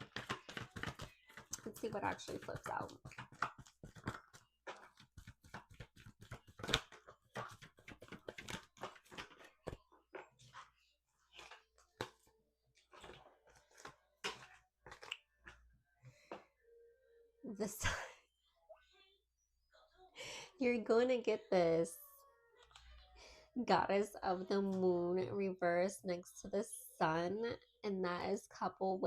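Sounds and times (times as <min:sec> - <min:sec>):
cards being shuffled: 0:00.0 - 0:01.6, 0:02.2 - 0:09.8.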